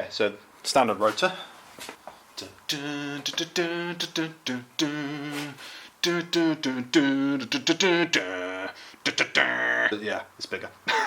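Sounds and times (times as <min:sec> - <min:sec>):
man humming a tune: 0:02.4 - 0:10.0.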